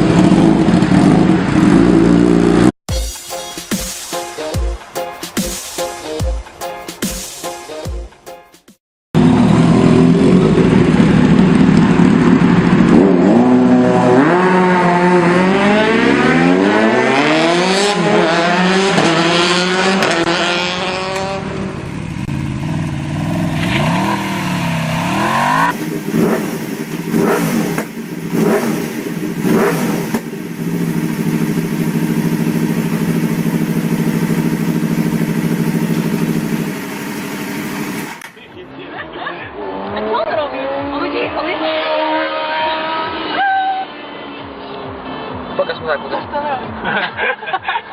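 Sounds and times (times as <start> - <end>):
motorcycle engine revving: 0.0 - 2.8, 9.2 - 46.9
engine crackles: 9.2 - 14.4, 18.9 - 41.6.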